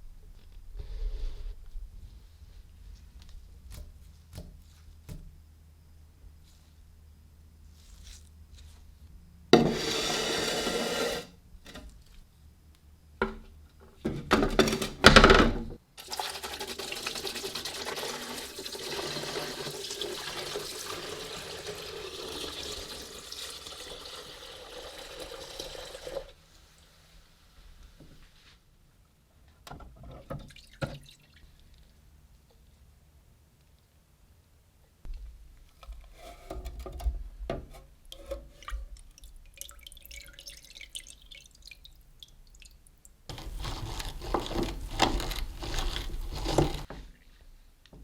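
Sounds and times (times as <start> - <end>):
water running into a sink: 16.0 - 26.3, 38.5 - 42.7.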